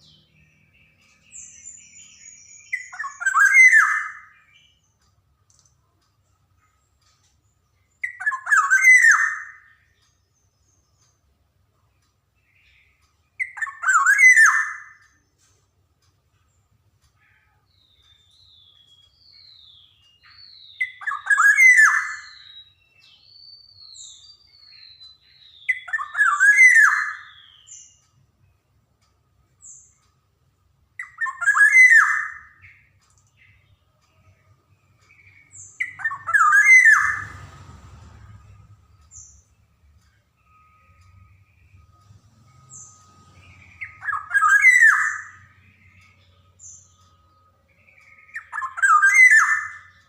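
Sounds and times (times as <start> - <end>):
bird calling: 0.0 - 4.8, 7.8 - 10.0, 12.5 - 15.2, 17.2 - 28.0, 31.0 - 33.7, 35.0 - 37.4, 43.4 - 47.0, 47.8 - 50.0.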